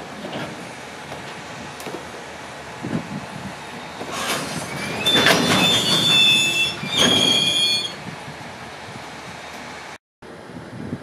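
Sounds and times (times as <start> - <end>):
freight wagons rolling on rails: 0.0 - 8.0
high-pitched wheel squeal: 3.9 - 8.0.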